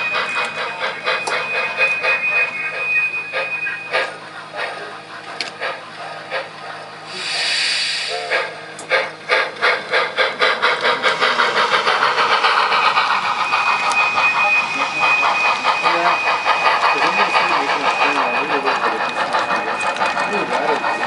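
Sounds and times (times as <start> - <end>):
model steam locomotive chuffing: 0.0 - 21.0.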